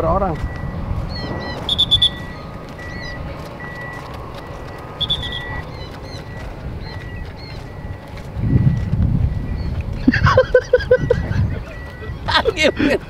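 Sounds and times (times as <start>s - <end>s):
low outdoor rumble: 0.0s - 13.0s
short high beeps: 0.4s - 9.7s, 11.0s - 13.0s
shrill bird calls and chirps: 1.1s - 3.2s, 5.0s - 7.7s.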